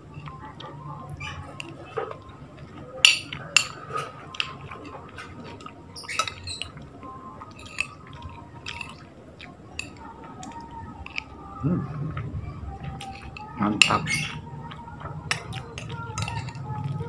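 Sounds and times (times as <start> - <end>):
person chewing wetly: 2.1 - 11.4, 12.8 - 14.0.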